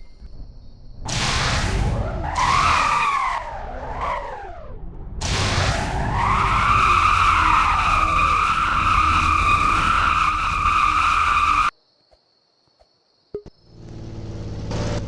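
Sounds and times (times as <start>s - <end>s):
engine rumble: 0.0s - 11.7s, 13.5s - 15.0s
car tyres squealing: 1.1s - 11.7s.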